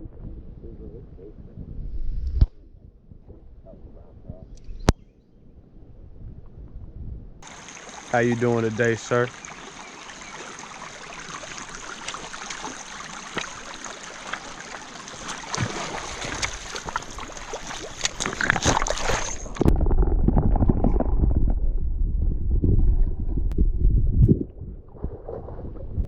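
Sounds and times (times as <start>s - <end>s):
low rumble on microphone: 0.0s - 9.8s, 18.1s - 26.0s
stream water flowing: 7.4s - 19.7s.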